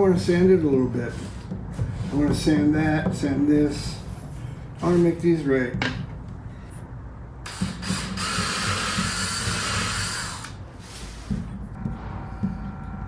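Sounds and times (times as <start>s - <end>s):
light handling knocks: 5.6s - 6.4s.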